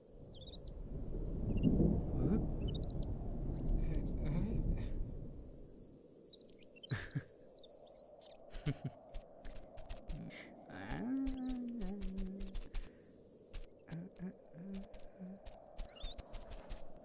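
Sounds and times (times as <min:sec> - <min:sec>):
cartoon birds chirping: 0:06.4 - 0:08.9.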